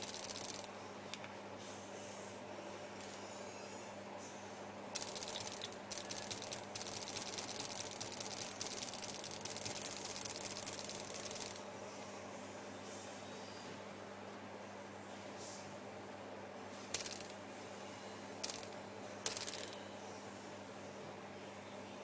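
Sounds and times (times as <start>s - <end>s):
stuttery crackling hiss: 4.9s - 11.7s.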